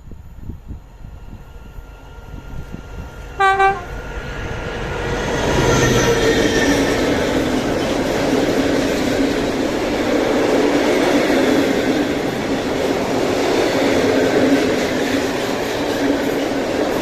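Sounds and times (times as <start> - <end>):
train rumbling past: 0.0 - 17.0
train horn toot: 3.4 - 4.1.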